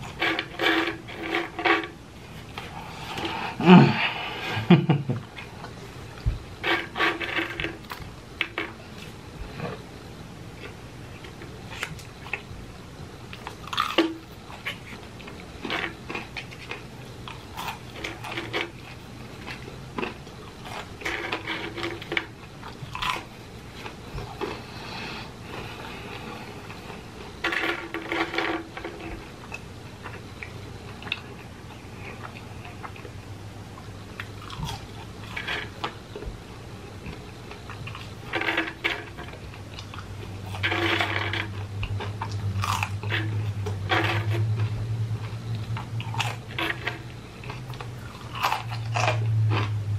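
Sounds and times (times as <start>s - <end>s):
steady low hum: 0.0s - 49.9s
person chewing fries: 13.2s - 36.2s, 36.9s - 49.9s.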